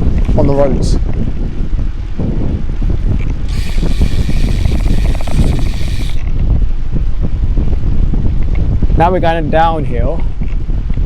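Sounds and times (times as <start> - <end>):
wind buffeting microphone: 0.0 - 11.0
bicycle freewheel ticking: 3.5 - 6.3.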